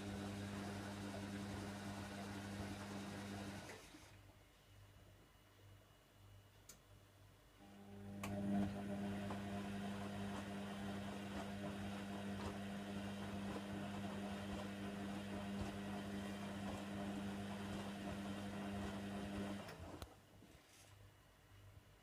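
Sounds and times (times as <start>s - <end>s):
washer dryer electrical hum: 0.0s - 4.4s, 7.6s - 20.4s.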